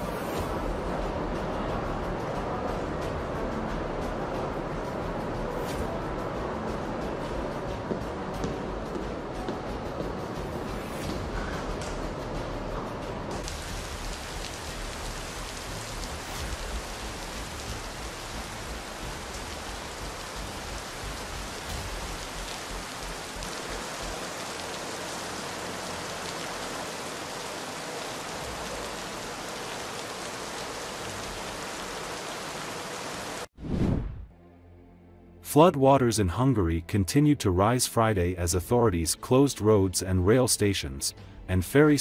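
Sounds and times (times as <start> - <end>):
heavy rain on pavement: 13.3 - 33.5.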